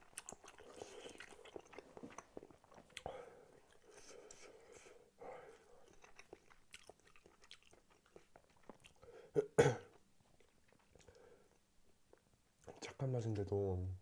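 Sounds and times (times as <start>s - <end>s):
sticky chewing with clicks: 0.0s - 4.4s, 5.8s - 9.0s.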